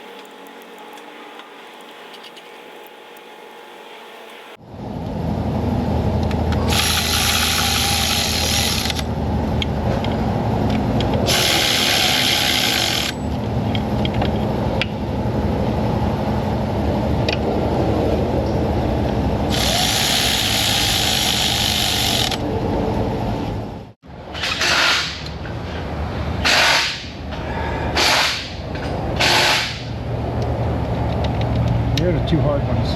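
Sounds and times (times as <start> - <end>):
power tool running: 6.6 - 9.1, 11.3 - 13.2, 19.5 - 22.5
ratchet clicks: 6.6 - 9.1, 19.5 - 22.4.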